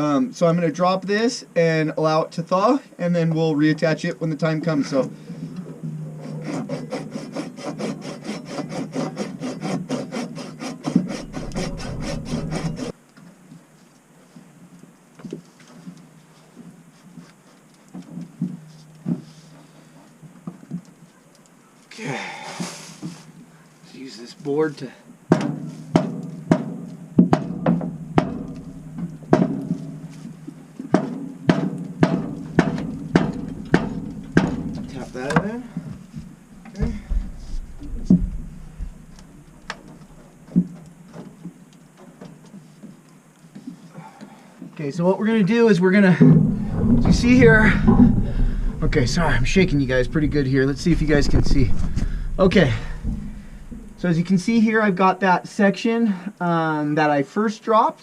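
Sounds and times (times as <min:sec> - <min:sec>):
hand saw cutting plastic pipe: 0:06.2 - 0:12.9
wooden board knocking pipe fitting: 0:10.8 - 0:12.9, 0:25.3 - 0:30.0, 0:30.9 - 0:41.3, 0:46.2 - 0:54.2.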